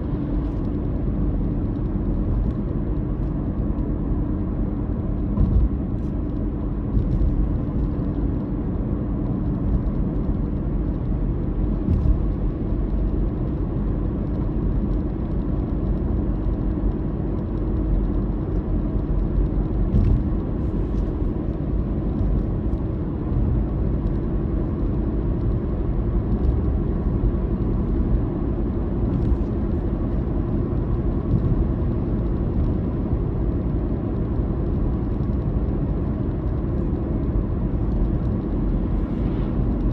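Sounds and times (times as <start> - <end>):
car road and engine drone: 0.0 - 39.9.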